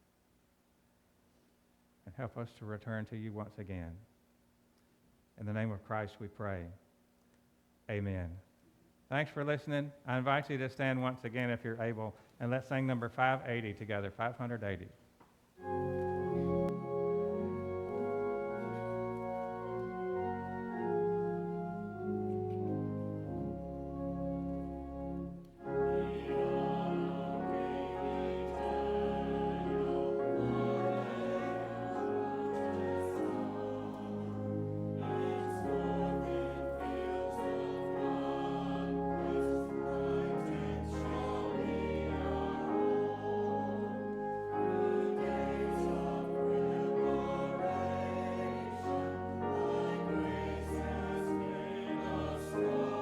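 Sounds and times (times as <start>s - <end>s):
congregation singing a hymn: 15.6s - 53.0s
organ playing: 15.6s - 53.0s.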